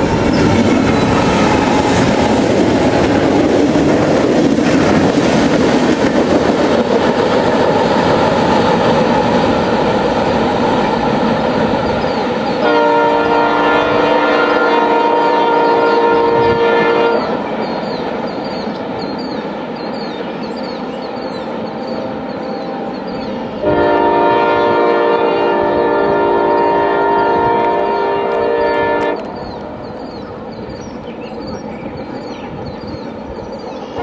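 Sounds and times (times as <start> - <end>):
freight train wheel and engine noise: 0.0 - 34.0
locomotive air horn blast: 12.6 - 17.3, 23.6 - 29.3.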